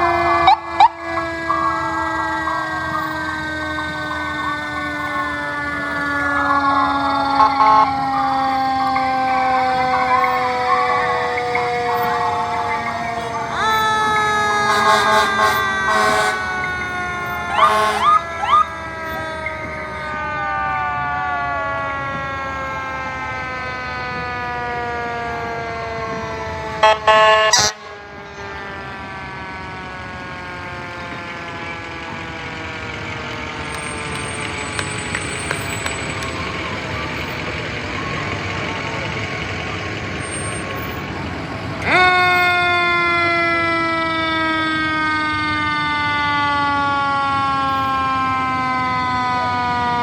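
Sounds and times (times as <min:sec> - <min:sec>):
air horn blasts: 0:00.0 - 0:08.2, 0:09.2 - 0:20.6, 0:26.8 - 0:28.2
fire truck siren winding down: 0:00.0 - 0:50.0.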